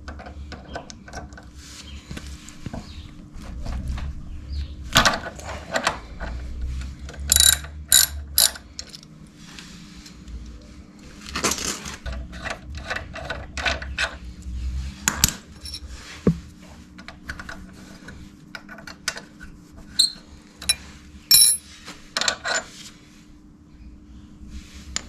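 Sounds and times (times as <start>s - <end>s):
metal tools clinking and scraping: 15.5s - 16.0s, 20.0s - 22.8s.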